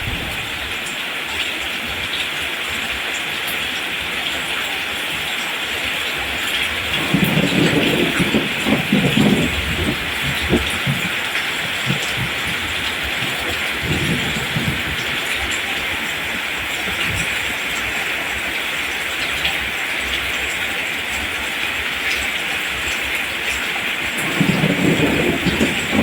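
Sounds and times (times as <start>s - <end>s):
deep uneven rumble: 0.0s - 0.8s, 7.0s - 15.2s, 24.2s - 26.0s
rain on rice plants: 0.0s - 26.0s.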